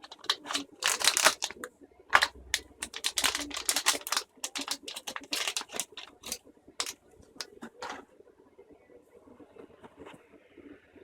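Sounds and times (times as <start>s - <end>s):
packaging rustling and crinkling: 0.0s - 8.0s.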